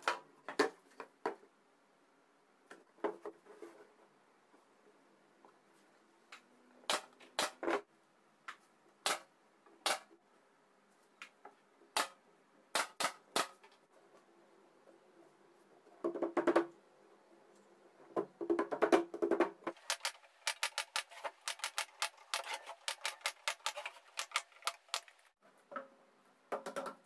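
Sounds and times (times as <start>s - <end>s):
knocks and taps on wood and metal: 26.5s - 27.0s.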